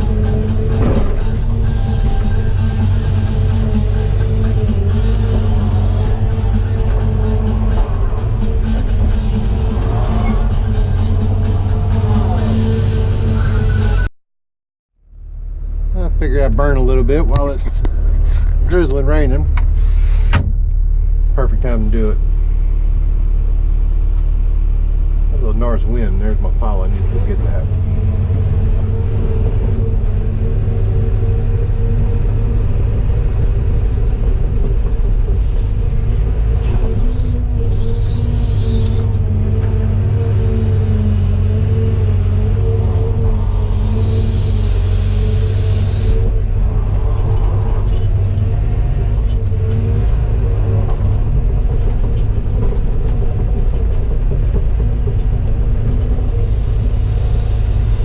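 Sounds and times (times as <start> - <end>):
diesel engine running under load: 0.0 - 14.1, 15.0 - 58.0.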